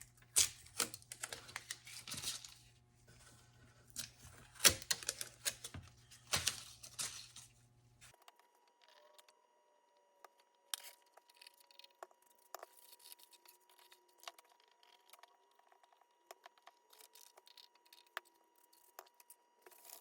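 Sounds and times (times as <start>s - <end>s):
armor parts clicking and rustling: 0.0s - 7.6s.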